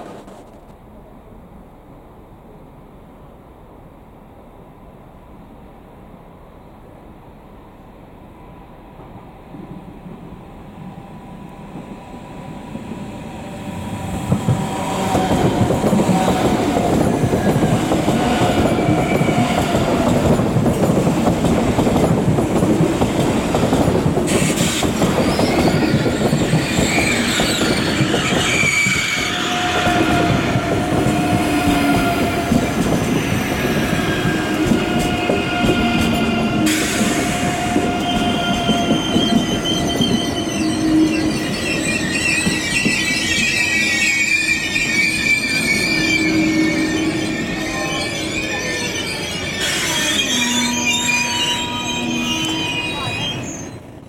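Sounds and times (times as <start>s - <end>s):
train running close by: 0.0s - 54.0s
wheels squealing: 24.3s - 54.0s.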